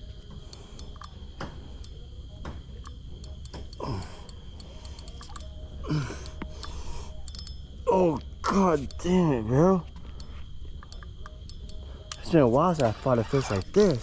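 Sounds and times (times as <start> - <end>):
steady high whine: 0.0 - 14.0
fishing reel clicking: 2.8 - 5.6, 6.2 - 7.6
person groaning: 3.8 - 4.2, 5.8 - 6.3.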